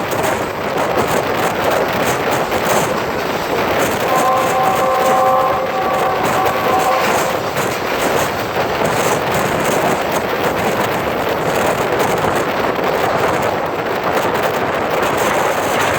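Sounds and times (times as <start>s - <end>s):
train wheels clattering on rails: 0.0s - 15.9s
wind buffeting microphone: 0.0s - 15.9s
train horn chord: 2.6s - 8.4s.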